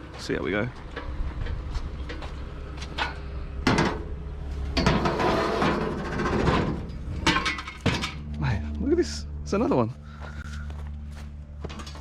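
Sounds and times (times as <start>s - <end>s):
metal trolley clanking: 0.2s - 8.6s.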